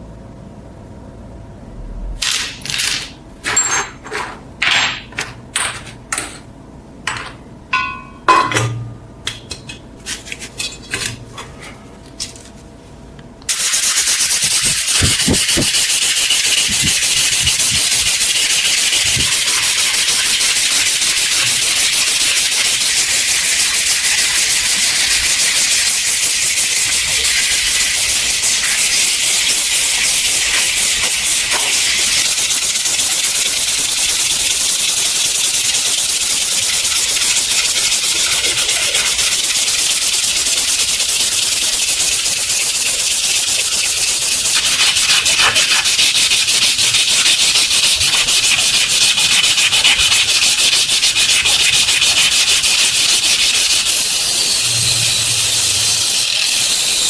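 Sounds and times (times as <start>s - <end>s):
loud steady hiss: 13.5s - 45.2s.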